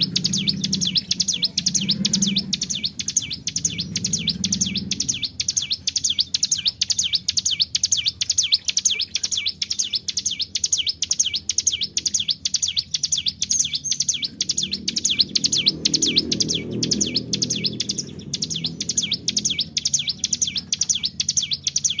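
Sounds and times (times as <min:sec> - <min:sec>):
faint low rumble: 0:00.0 - 0:08.1, 0:11.1 - 0:22.0
bird singing high sharp notes: 0:00.0 - 0:22.0.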